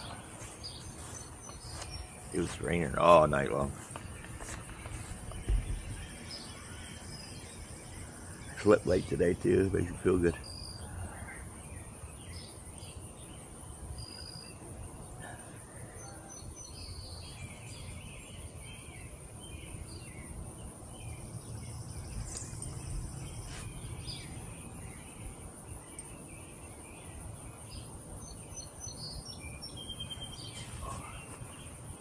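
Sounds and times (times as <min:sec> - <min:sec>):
high-pitched insect chorus: 0:00.0 - 0:14.6
small birds chirping: 0:00.0 - 0:32.0.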